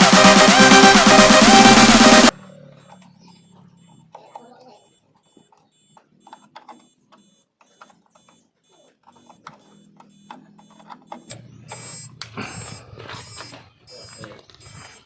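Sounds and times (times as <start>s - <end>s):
truck reverse beeper: 6.8s - 14.9s.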